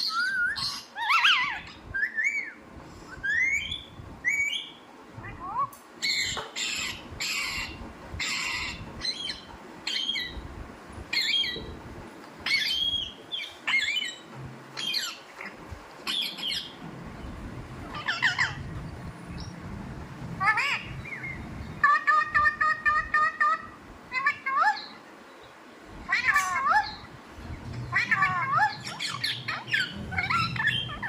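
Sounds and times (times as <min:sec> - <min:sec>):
parrot squawking: 0:00.0 - 0:02.6, 0:03.3 - 0:10.4, 0:17.8 - 0:18.7, 0:20.4 - 0:25.0, 0:26.1 - 0:27.1, 0:27.9 - 0:31.0.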